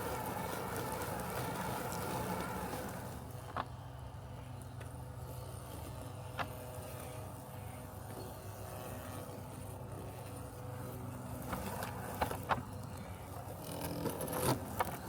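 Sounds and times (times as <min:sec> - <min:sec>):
robotic lawn mower humming: 0:00.0 - 0:15.0.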